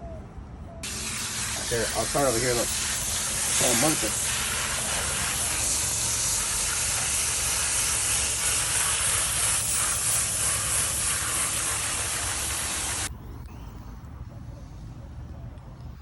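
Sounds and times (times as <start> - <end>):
spray nozzle hissing: 0.8 - 13.1.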